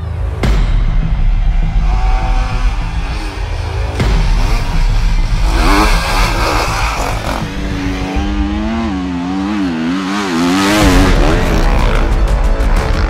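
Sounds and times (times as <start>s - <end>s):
motorcycle engines revving: 1.8s - 13.0s.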